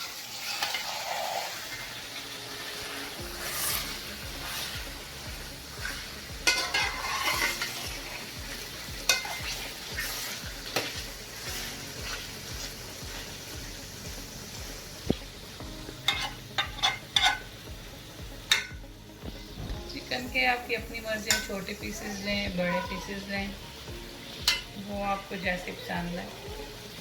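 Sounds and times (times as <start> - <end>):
food sizzling in oil: 0.0 - 27.0
spoon stirring and scraping: 0.2 - 13.6, 15.8 - 17.5, 21.2 - 23.1
spoon knocking against pot: 6.4 - 7.7, 16.0 - 17.5, 18.5 - 18.8, 21.3 - 21.5, 24.4 - 24.8.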